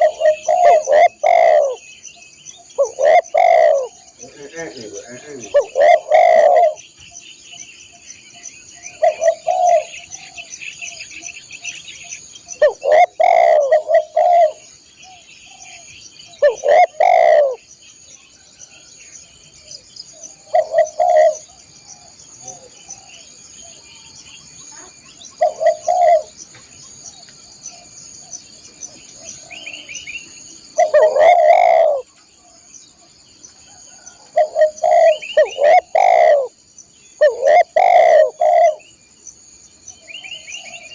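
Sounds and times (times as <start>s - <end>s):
dove cooing: 0.0s - 1.9s, 2.6s - 6.8s, 8.9s - 11.1s, 12.6s - 17.6s, 19.6s - 23.4s, 25.4s - 26.4s, 30.7s - 32.1s, 33.7s - 36.6s, 37.2s - 38.9s
insects chirring: 0.0s - 40.9s.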